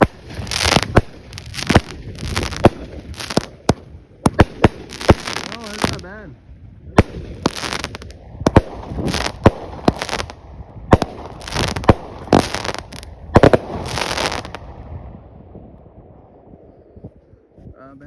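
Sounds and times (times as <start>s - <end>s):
firework crackling hiss: 0.0s - 3.7s, 4.3s - 6.0s, 7.0s - 10.4s, 11.0s - 14.6s
firework bangs: 0.0s - 6.1s, 7.0s - 14.7s.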